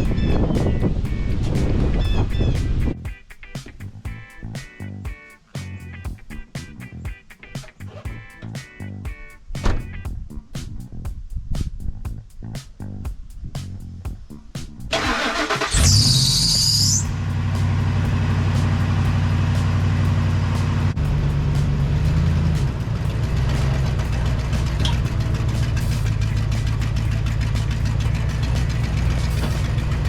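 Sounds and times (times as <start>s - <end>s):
high whine: 14.2s - 30.0s
truck engine starting and idling: 14.9s - 30.0s.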